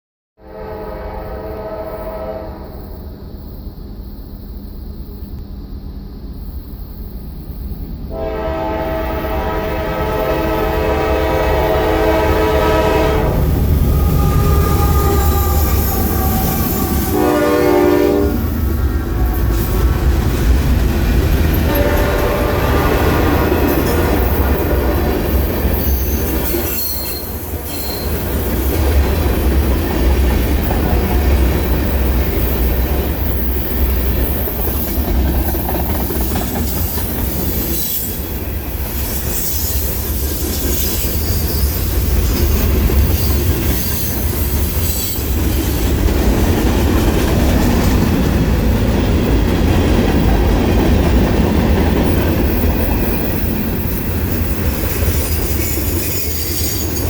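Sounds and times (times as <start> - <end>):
train wheels rumbling on track: 1.2 - 57.0
high wheel squeal: 13.8 - 17.5, 25.7 - 28.3, 36.4 - 45.4, 52.1 - 57.0.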